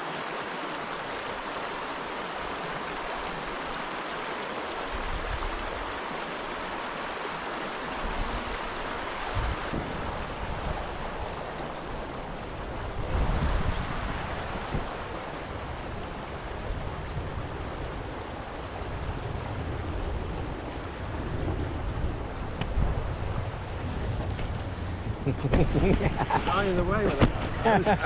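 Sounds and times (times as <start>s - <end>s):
river water rushing over stones: 0.0s - 28.0s
wind buffeting microphone: 8.0s - 28.0s.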